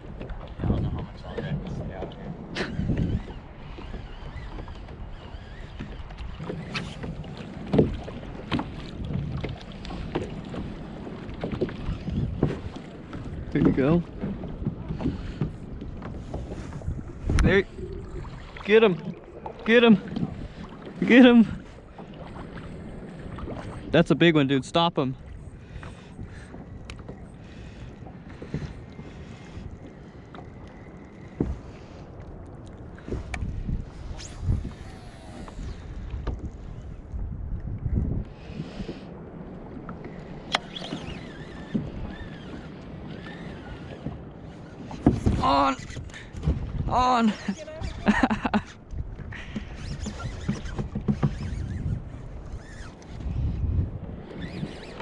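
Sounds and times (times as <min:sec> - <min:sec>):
wind buffeting microphone: 0:00.0 - 0:24.2, 0:25.1 - 0:55.0
water slapping kayak hull: 0:00.0 - 0:55.0
knocks and splashes: 0:06.4 - 0:16.5, 0:44.8 - 0:47.0, 0:49.2 - 0:51.8.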